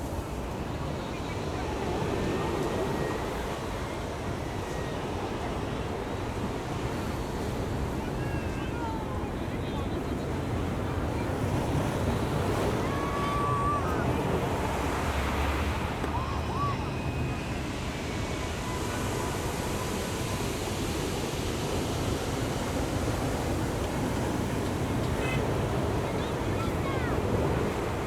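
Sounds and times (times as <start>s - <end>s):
ocean surf breaking: 10.0s - 28.0s.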